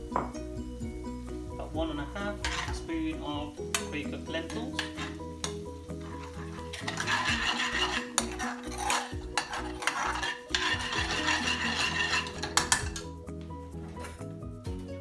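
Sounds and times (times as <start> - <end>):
soft background music: 0.0 - 15.0
metal spoon scraping a pan: 2.2 - 2.9, 3.6 - 13.2
spoon clinking against pan: 4.5 - 5.6, 6.2 - 13.1.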